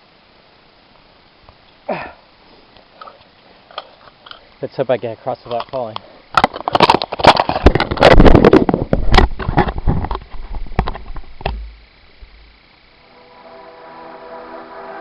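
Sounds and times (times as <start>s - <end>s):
music: 13.0s - 15.0s.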